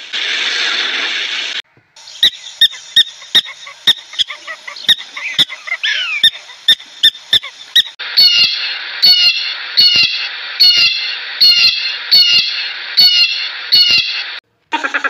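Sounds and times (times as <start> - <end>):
blue jay harsh calls: 2.0 - 15.0
meerkat chirping: 2.2 - 14.0.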